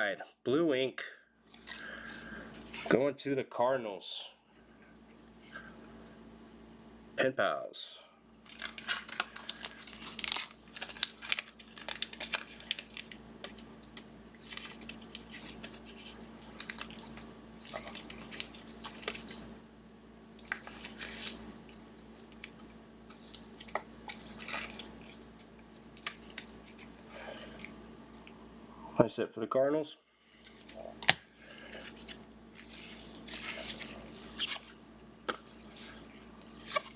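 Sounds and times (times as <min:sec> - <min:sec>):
faint low hum: 0:00.0 - 0:36.9
card packaging crinkling: 0:01.4 - 0:03.0, 0:08.4 - 0:19.5, 0:20.4 - 0:28.3, 0:30.2 - 0:36.9.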